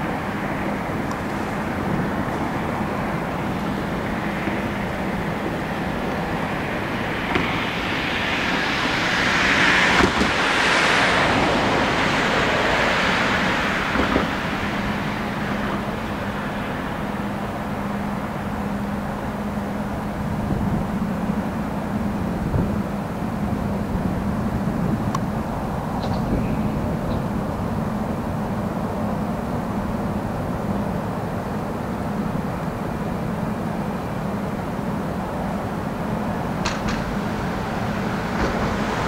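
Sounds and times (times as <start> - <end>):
diesel locomotive engine hum: 0.0 - 39.0
freight cars rumbling: 0.0 - 39.0.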